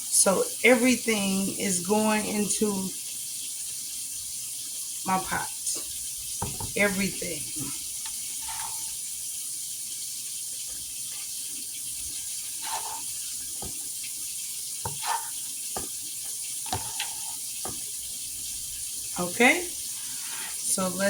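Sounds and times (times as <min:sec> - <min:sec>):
vegetables sizzling in a pot: 0:00.0 - 0:21.0
utensil knocking against pot: 0:06.4 - 0:06.8, 0:14.9 - 0:16.0.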